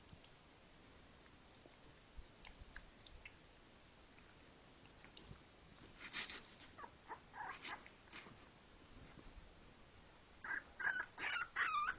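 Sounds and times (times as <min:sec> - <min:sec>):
soft rustle: 0:01.2 - 0:09.9
puppies whimpering and squeaking: 0:06.7 - 0:07.9, 0:10.5 - 0:11.9.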